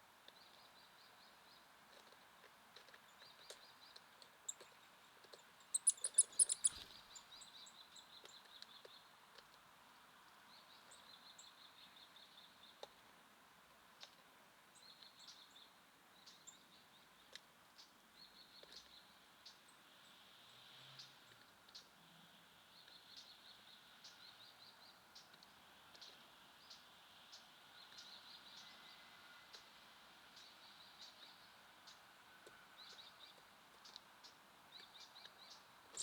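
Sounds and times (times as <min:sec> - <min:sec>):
faint background hiss: 0:00.0 - 0:36.0
songbirds trilling: 0:05.7 - 0:07.8.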